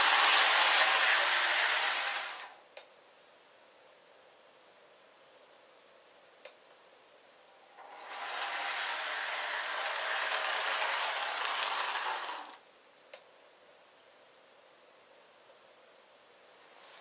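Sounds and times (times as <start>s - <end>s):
wheels clicking: 0.0s - 2.5s, 7.8s - 12.6s
model train motor whirring: 0.0s - 2.6s, 7.8s - 12.6s.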